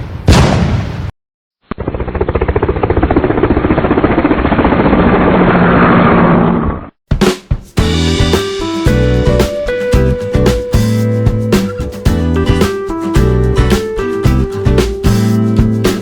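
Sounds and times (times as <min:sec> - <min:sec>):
boom: 0:00.2 - 0:01.1
helicopter rotor blades chopping: 0:01.7 - 0:06.8.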